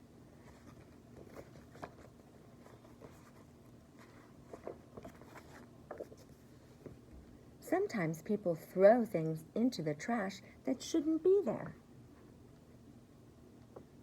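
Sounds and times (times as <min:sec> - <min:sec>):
picture book pages turning: 0:00.4 - 0:07.0.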